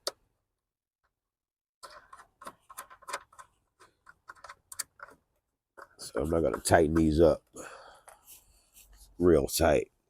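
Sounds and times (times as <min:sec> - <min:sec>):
parts clicking and tapping: 0:01.8 - 0:07.4.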